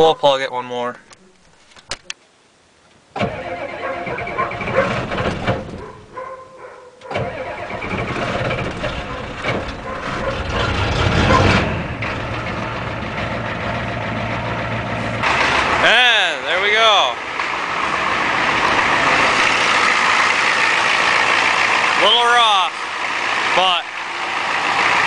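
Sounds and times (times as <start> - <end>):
starter motor cranking: 7.1 - 11.6
diesel engine rough idle: 7.2 - 25.0.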